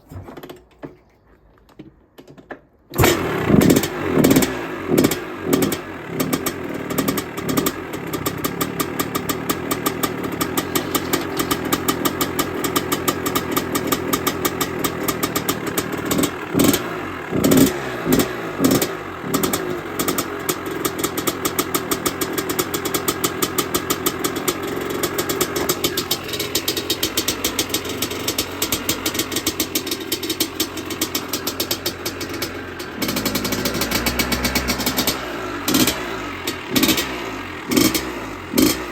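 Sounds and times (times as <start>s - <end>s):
dirt bike engine idling with blips: 3.0s - 38.9s.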